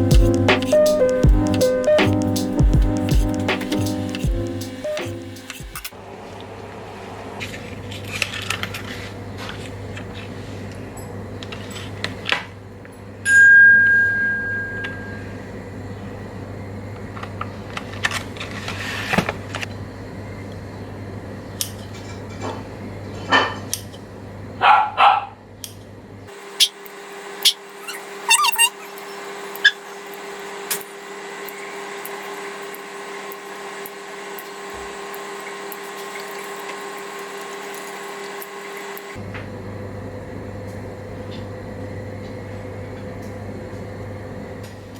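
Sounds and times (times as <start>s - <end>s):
steady low hum: 0.0s - 6.1s
clear ringing tone: 13.3s - 15.4s.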